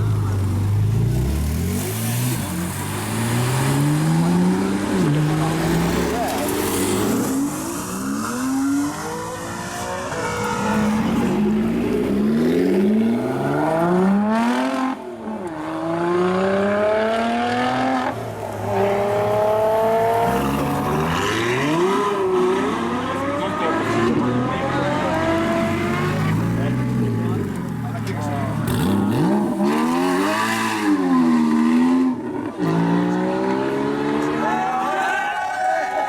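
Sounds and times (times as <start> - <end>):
car engines revving accelerating: 0.0 - 35.0.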